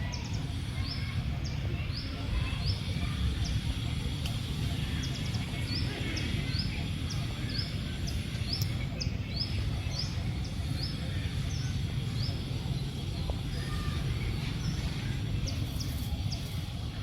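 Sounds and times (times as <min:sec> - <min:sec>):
low outdoor rumble: 0:00.0 - 0:17.0
bird chirping: 0:00.1 - 0:17.0.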